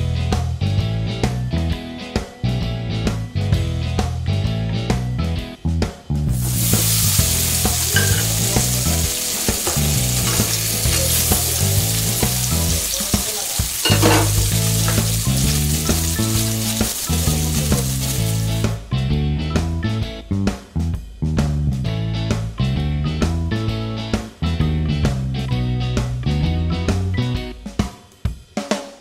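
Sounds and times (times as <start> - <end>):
food sizzling in hot oil: 6.3 - 18.8
spatula stirring in pan: 6.5 - 18.6.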